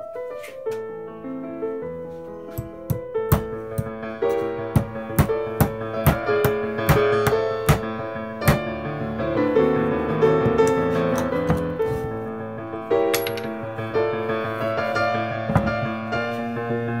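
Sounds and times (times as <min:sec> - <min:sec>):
piano music: 0:00.0 - 0:17.0
hammer striking nail into wood: 0:02.6 - 0:03.9, 0:04.8 - 0:08.7.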